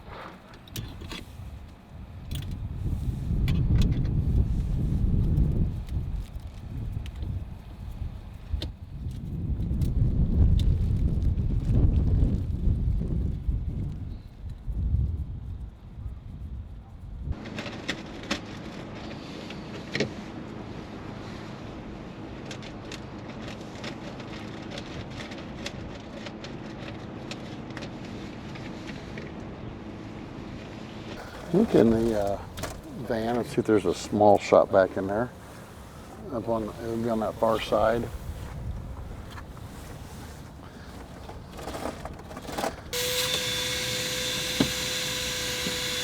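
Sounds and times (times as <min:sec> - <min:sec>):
handling rustles: 0:31.2 - 0:43.0
shop vacuum running: 0:31.2 - 0:46.0.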